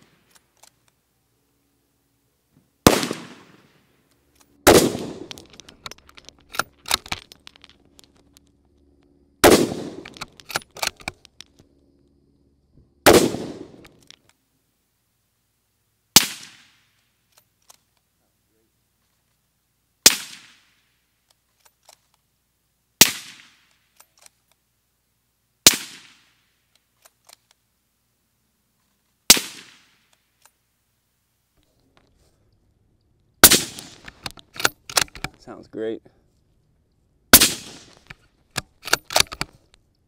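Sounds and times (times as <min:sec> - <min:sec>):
suppressed rifle shots: 0:02.8 - 0:03.8, 0:04.6 - 0:07.4, 0:09.4 - 0:11.2, 0:13.0 - 0:14.1, 0:16.2 - 0:16.8, 0:20.0 - 0:20.7, 0:23.0 - 0:23.7, 0:25.6 - 0:26.3, 0:29.3 - 0:30.0, 0:33.4 - 0:35.3, 0:37.3 - 0:39.6.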